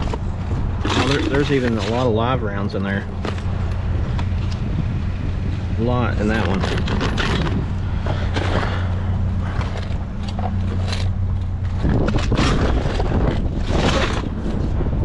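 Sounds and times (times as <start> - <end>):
handling noises: 0.0 - 4.8, 5.5 - 14.8
vehicle engine humming: 0.0 - 15.0.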